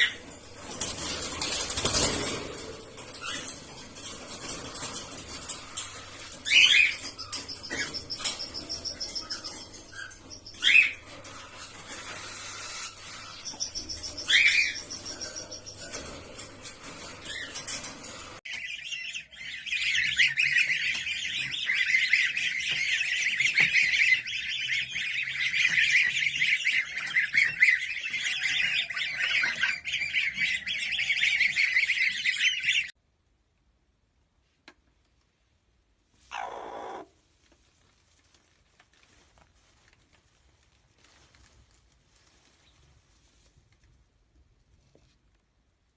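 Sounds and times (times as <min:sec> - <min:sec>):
dense high-pitched bird chirping: 0:00.0 - 0:33.0, 0:36.3 - 0:37.0
loud bird calls: 0:36.3 - 0:37.1.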